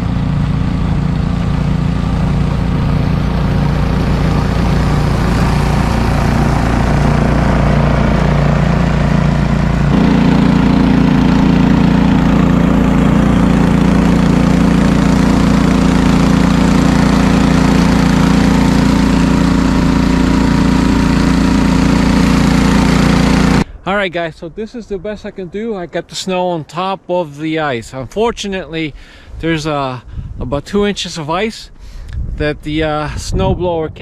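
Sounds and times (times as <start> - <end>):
snowblower engine running: 0.0 - 23.8.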